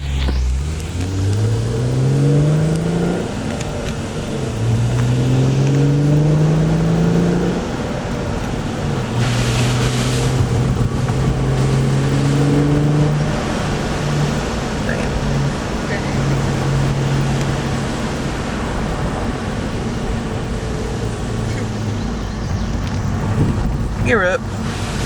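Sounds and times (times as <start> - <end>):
car engine accelerating: 0.0 - 25.0
brief hiss: 9.2 - 10.4.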